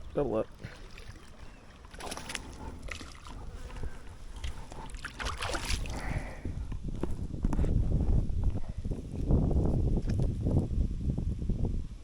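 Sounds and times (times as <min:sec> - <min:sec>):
water splashing and sloshing: 0:00.0 - 0:06.4.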